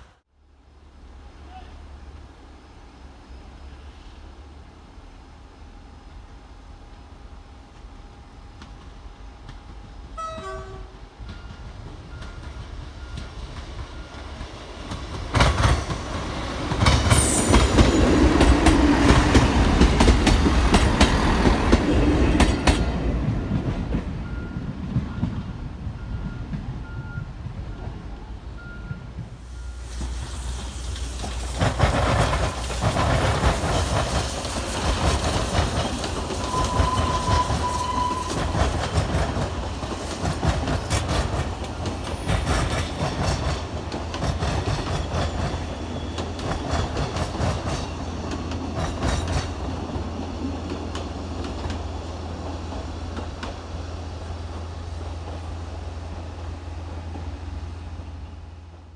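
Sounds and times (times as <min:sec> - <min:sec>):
train rumbling: 0:00.0 - 0:58.9
train wheels clattering: 0:11.2 - 0:27.0, 0:29.2 - 0:53.8.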